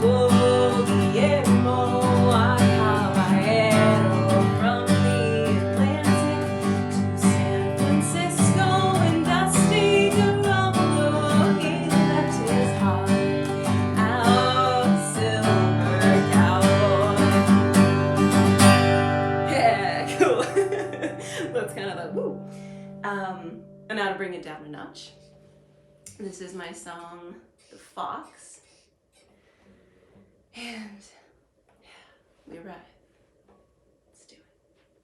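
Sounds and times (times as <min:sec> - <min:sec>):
person singing folk melody: 0:00.0 - 0:24.0
acoustic guitar strumming: 0:00.0 - 0:26.0.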